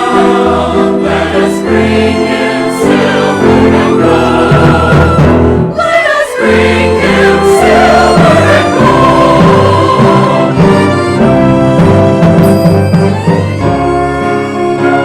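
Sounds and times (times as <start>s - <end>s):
church choir singing: 0.0s - 11.8s
orchestral accompaniment: 0.0s - 15.0s.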